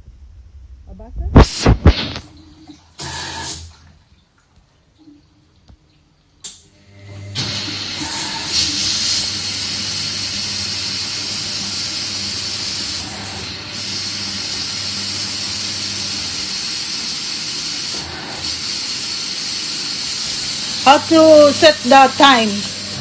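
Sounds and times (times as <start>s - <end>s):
washing machine hum: 0.0s - 23.0s
water rushing into washing machine: 1.6s - 5.7s, 6.4s - 23.0s.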